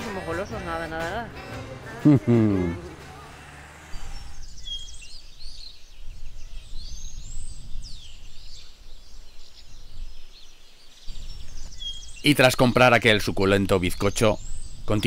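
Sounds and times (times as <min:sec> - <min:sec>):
small birds chirping and whistling: 0:03.9 - 0:15.0.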